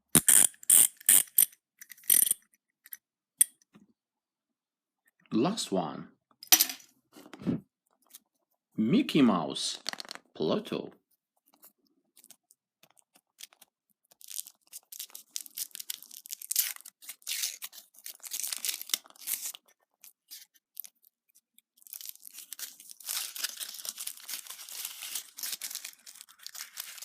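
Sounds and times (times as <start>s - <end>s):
wrapper crinkling and tearing: 12.2s - 21.1s, 21.7s - 27.0s.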